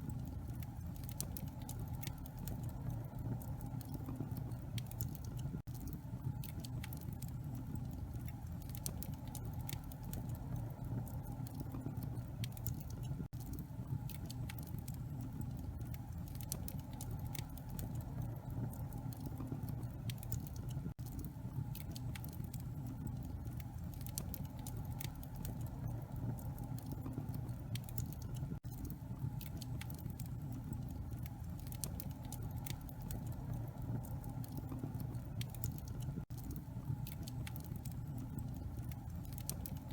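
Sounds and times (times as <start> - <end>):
fire low rumble: 0.0 - 39.9
wood fire crackling and popping: 0.0 - 39.9.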